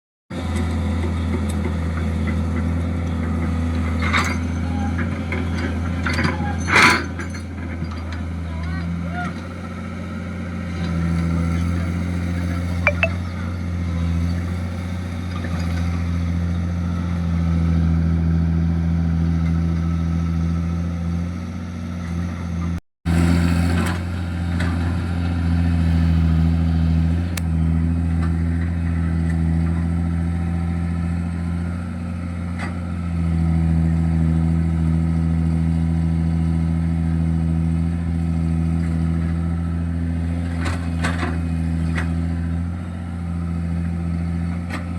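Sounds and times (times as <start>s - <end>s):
diesel engine droning: 13.4s - 44.9s.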